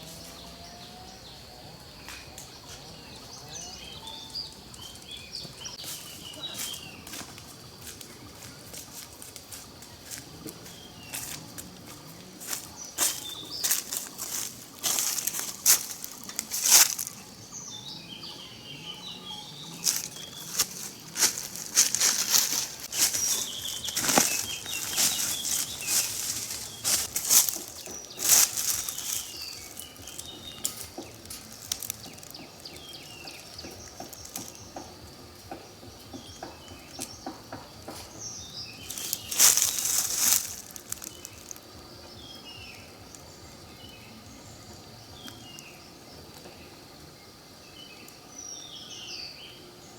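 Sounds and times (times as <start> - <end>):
small birds chirping: 0.0 - 49.9
rustling: 12.5 - 17.4, 19.7 - 34.7, 38.8 - 41.6.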